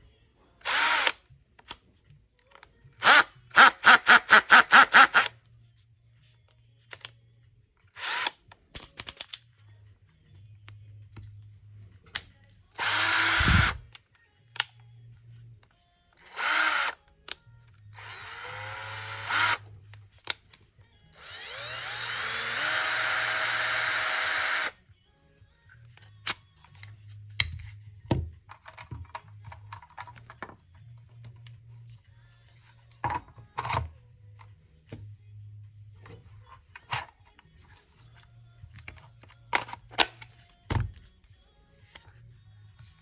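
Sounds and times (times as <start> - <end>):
cordless drill motor whining: 0.6 - 1.2, 3.0 - 5.3, 8.0 - 8.4, 12.8 - 13.9, 16.2 - 17.0, 17.9 - 19.7, 21.1 - 24.8.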